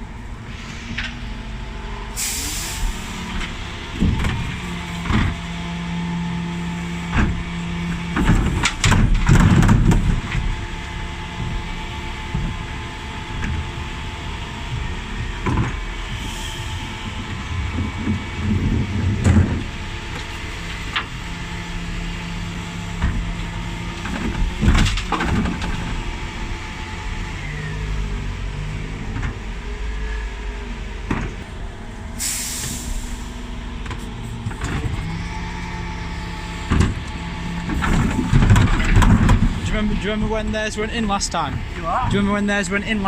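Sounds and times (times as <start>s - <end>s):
lorry engine running: 0.0s - 43.0s
air hiss: 2.2s - 3.2s, 31.4s - 33.4s.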